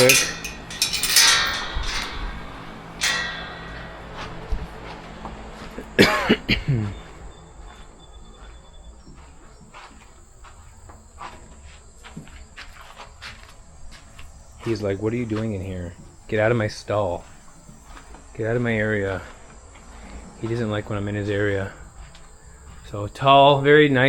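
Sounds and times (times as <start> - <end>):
stall door clattering: 0.0 - 6.7
crickets chirping faintly: 0.0 - 24.0.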